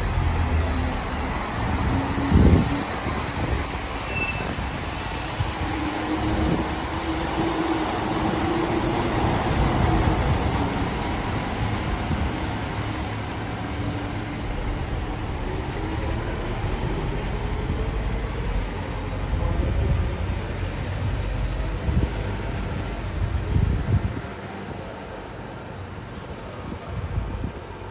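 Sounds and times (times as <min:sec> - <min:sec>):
train rumbling: 0:00.0 - 0:27.9.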